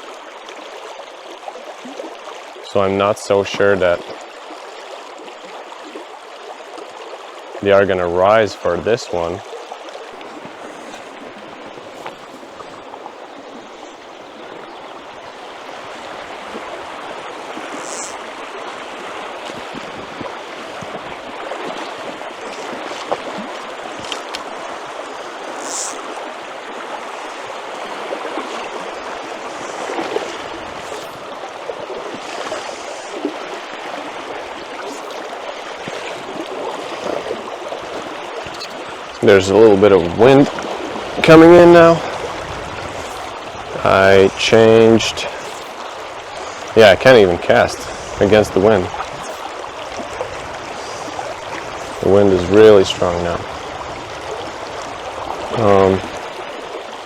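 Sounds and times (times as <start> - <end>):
river flowing water: 0.0 - 57.0.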